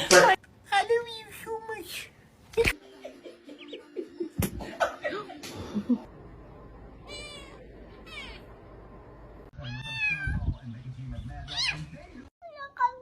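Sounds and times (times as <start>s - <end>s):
cat meowing: 7.0s - 8.5s, 9.6s - 10.4s.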